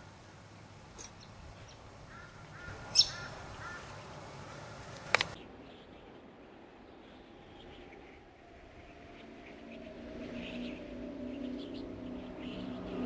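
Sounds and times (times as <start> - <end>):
birds calling: 0.0 - 13.0
sharp clicks: 4.9 - 5.4.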